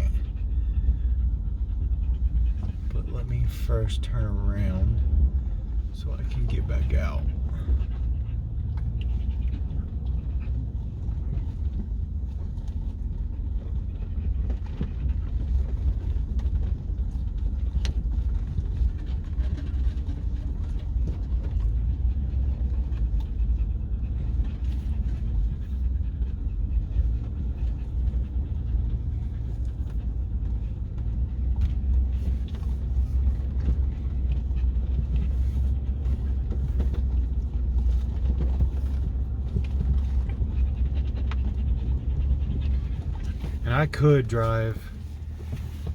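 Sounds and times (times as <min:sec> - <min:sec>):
dog panting: 0:00.0 - 0:45.9
truck engine and road rumble: 0:00.0 - 0:45.9.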